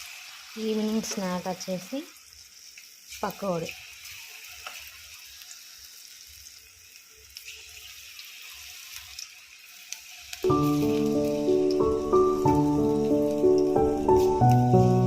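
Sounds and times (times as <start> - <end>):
food deep-frying in hot oil: 0.0 - 15.0
loud music: 10.5 - 15.0.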